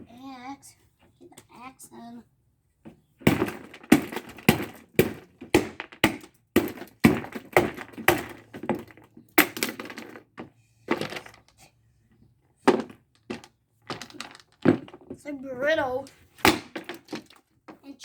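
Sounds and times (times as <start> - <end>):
axe smashing fan: 3.2 - 10.0, 16.4 - 17.4.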